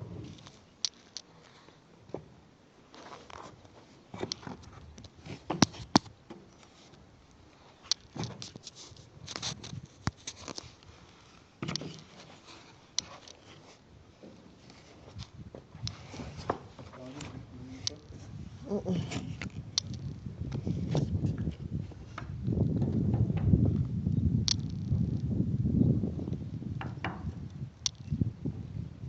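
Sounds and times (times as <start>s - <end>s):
handling rustles: 2.9s - 21.2s
handling clicks and knocks: 3.3s - 6.6s, 11.6s - 12.4s, 24.5s - 25.0s.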